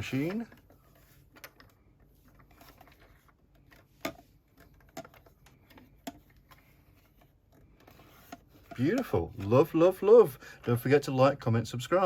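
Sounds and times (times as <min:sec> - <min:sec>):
plastic clicks and taps: 0:03.5 - 0:06.6.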